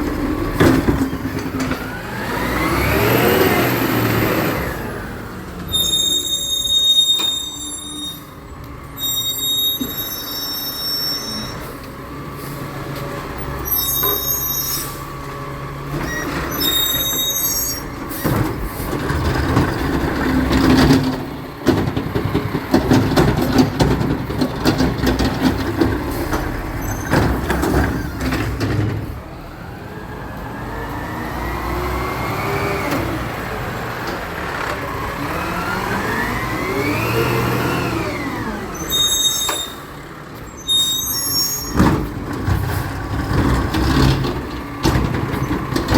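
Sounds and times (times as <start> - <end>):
truck engine revving: 0.0 - 5.6, 11.9 - 40.5, 41.4 - 45.9
high squeals: 5.7 - 8.4, 9.0 - 11.8, 13.6 - 15.1, 16.0 - 18.2, 38.0 - 41.9.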